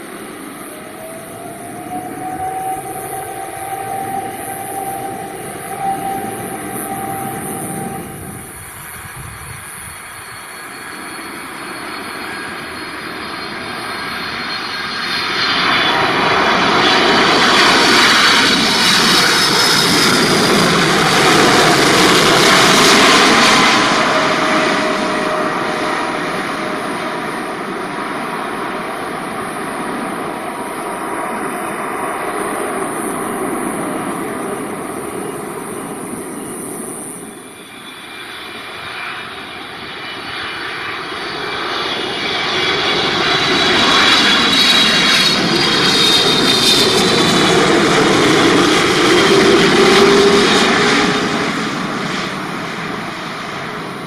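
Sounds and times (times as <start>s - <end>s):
approaching jet: 0.0s - 54.0s
jet passing low overhead: 0.0s - 54.0s.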